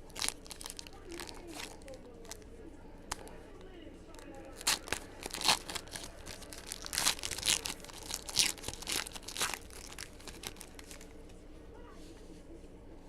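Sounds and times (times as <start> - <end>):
wrappers tearing and crinkling: 0.0 - 2.4, 4.1 - 11.1.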